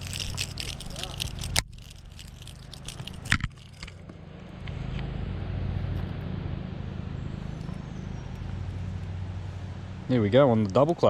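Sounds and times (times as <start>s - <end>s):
handling noise clicks and crackles: 0.0s - 4.8s
steady low rumble: 0.0s - 11.0s.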